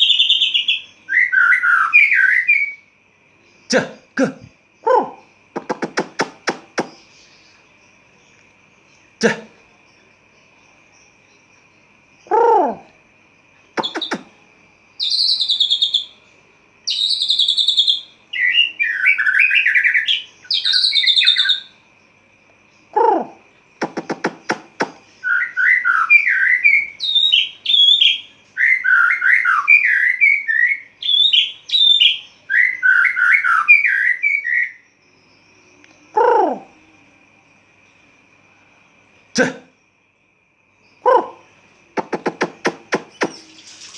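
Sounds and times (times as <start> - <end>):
bird singing whistled phrases: 0.0 - 2.8, 13.8 - 14.3, 15.0 - 16.1, 23.8 - 34.8, 42.0 - 43.9
harsh bird calls: 0.0 - 2.8, 3.6 - 7.8, 8.9 - 9.8, 12.2 - 13.0, 13.7 - 16.3, 16.9 - 21.8, 22.8 - 34.8, 41.0 - 43.9.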